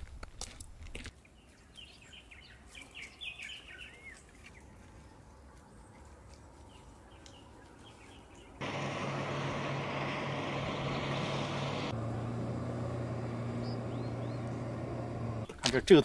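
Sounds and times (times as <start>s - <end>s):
faint outdoor background: 0.0s - 16.0s
bird chirping: 1.4s - 5.2s, 13.4s - 15.3s.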